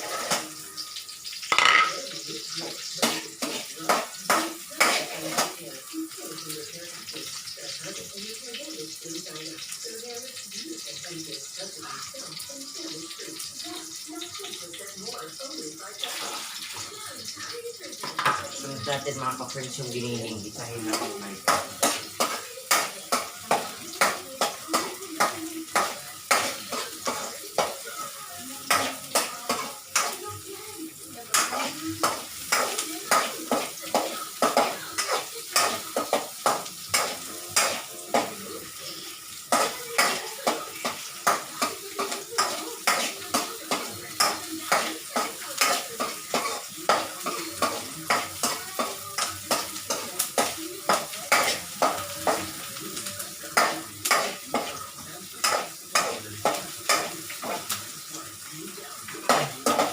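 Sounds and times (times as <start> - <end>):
spatula scraping frying pan: 0.0 - 0.6, 1.4 - 5.6, 18.1 - 58.2
oil sizzling: 0.0 - 59.9.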